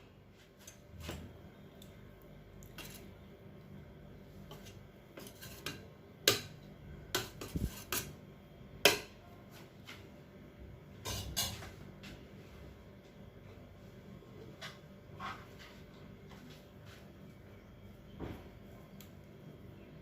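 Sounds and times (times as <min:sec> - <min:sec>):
spoon scraping cooking pot: 0:04.4 - 0:06.5, 0:07.2 - 0:08.2.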